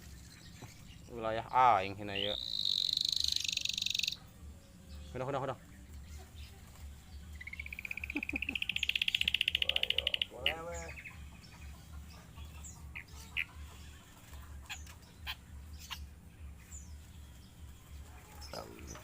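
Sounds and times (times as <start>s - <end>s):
low throbbing hum: 1.9s - 19.0s
short high bird chirps: 2.2s - 4.2s
bird rapid rising trill: 2.2s - 4.3s, 7.4s - 11.2s.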